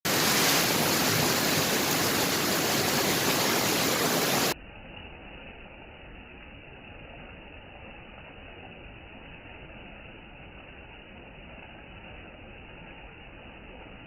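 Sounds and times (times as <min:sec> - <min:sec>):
heavy rain hissing: 0:00.0 - 0:04.6.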